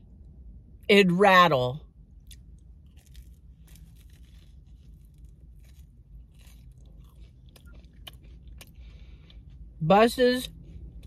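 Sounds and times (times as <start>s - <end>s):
chewing and biting pastry: 2.0s - 9.8s.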